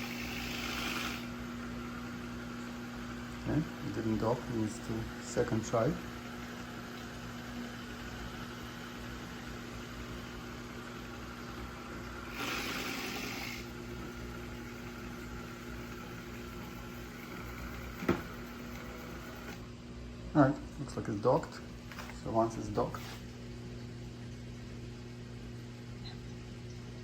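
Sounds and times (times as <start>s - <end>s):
hiss: 0.0s - 1.3s, 12.3s - 13.7s
robot vacuum humming: 0.0s - 1.4s, 12.3s - 19.6s.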